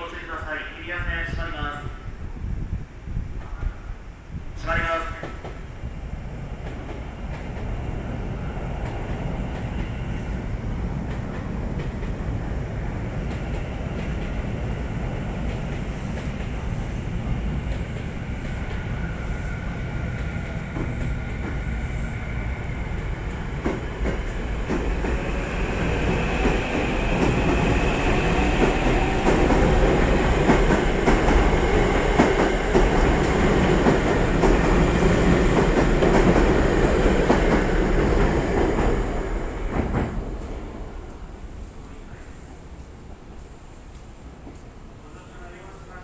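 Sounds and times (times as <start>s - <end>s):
train wheels clacking on rails: 6.5s - 10.3s, 10.9s - 12.4s, 13.2s - 40.6s.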